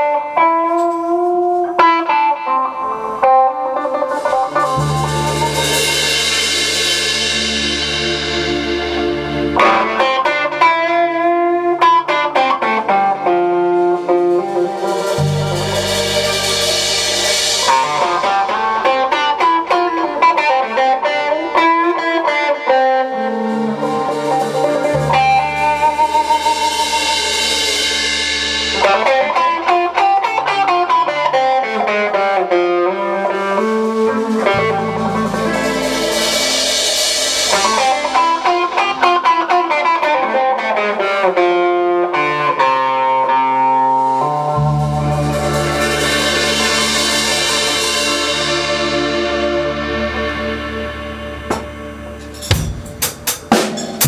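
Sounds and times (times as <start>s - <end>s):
drums: 0.0s - 54.0s
guitar lead melody: 0.0s - 54.0s
bass: 4.1s - 10.1s, 14.0s - 19.7s, 23.3s - 29.4s, 33.4s - 38.6s, 44.0s - 54.0s.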